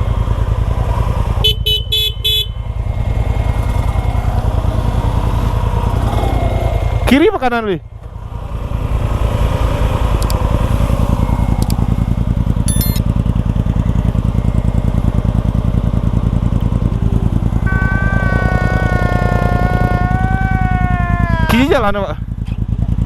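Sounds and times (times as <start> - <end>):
motorcycle engine chugging: 0.0 - 23.0
high-pitched tone: 12.7 - 13.0, 16.8 - 20.2.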